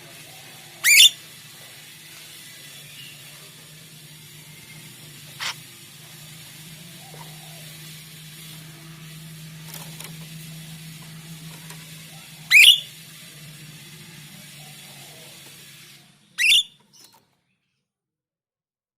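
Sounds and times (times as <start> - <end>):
low hum and hiss: 0.0 - 16.8
bird whistled calls: 0.8 - 1.2, 12.5 - 13.0, 16.4 - 17.1.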